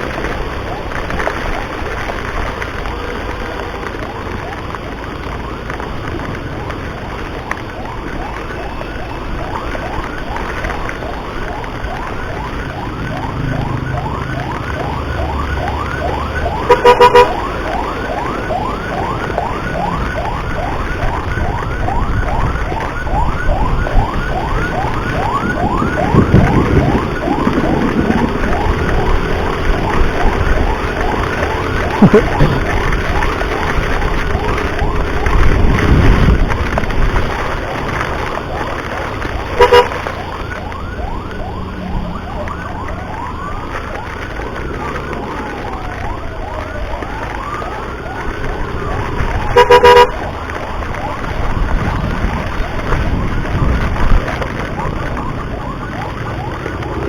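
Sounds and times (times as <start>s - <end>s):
emergency siren yelping: 0.0s - 57.0s
road and engine noise: 0.0s - 57.0s
vehicle horn blasts: 16.7s - 17.3s, 39.6s - 40.0s, 49.6s - 50.1s.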